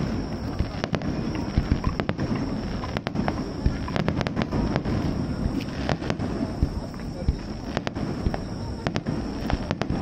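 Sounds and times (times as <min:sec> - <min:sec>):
fireworks cracks and bangs: 0:00.0 - 0:10.0.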